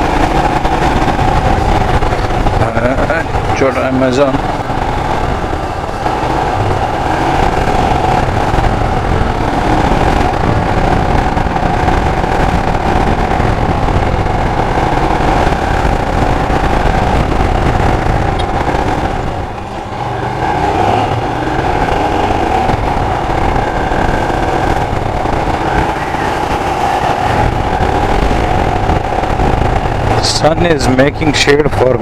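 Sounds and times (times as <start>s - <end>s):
motorcycle engine running: 0.0s - 32.0s
road noise: 0.0s - 32.0s.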